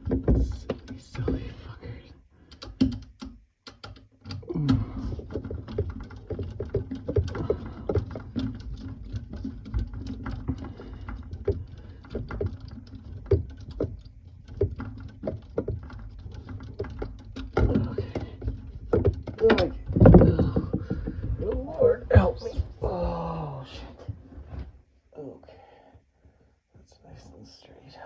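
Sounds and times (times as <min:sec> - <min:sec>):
metal hardware clicking and rattling: 0:02.5 - 0:22.7.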